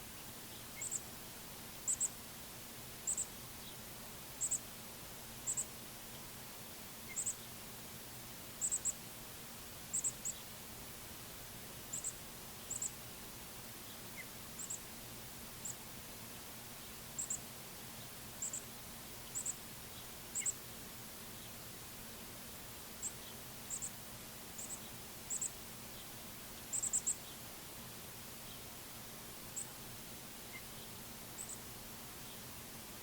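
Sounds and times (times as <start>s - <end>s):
faint steady hum: 0.0s - 33.0s
songbird high-pitched chirps: 0.2s - 1.1s, 1.9s - 2.2s, 3.0s - 4.7s, 5.4s - 5.7s, 7.0s - 7.6s, 8.6s - 9.0s, 9.9s - 10.6s, 11.9s - 13.0s, 13.8s - 14.9s, 15.6s - 15.9s, 16.8s - 20.6s, 23.0s - 24.0s, 24.6s - 27.4s, 28.4s - 28.7s, 30.4s - 32.5s.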